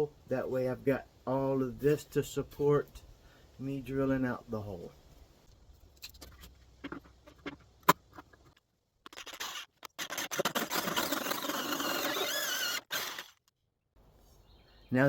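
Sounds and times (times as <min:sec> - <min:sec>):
hole saw drilling through wood: 0:09.1 - 0:13.5.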